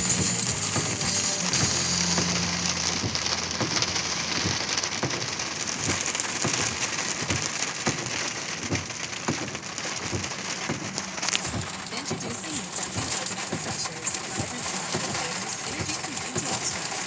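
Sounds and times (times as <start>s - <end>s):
heavy rain pouring: 0.0s - 17.0s
raindrops striking a surface: 0.0s - 17.0s.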